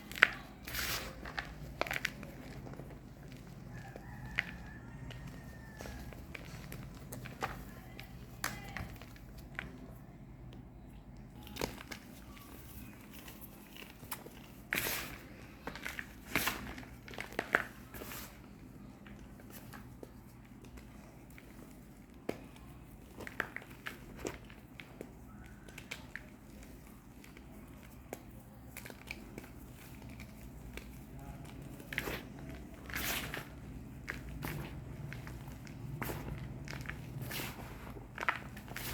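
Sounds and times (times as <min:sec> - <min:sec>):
chalk bars crunching: 0:00.0 - 0:09.0, 0:11.9 - 0:18.5, 0:29.0 - 0:38.9
chalk crackling and clicking: 0:19.1 - 0:38.9.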